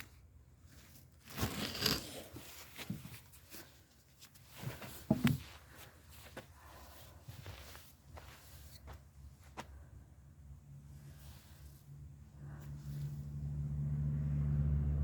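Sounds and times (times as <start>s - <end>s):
rustling and crunching handling: 0.0s - 9.9s.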